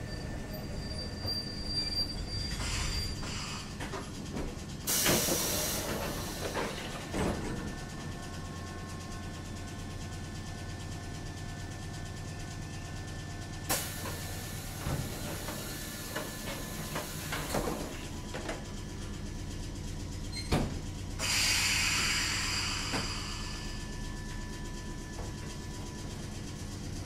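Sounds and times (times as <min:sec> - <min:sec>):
train car humming: 0:00.0 - 0:27.0
knocks and clunks: 0:03.8 - 0:07.8, 0:20.4 - 0:20.9
loud hiss: 0:21.2 - 0:23.7.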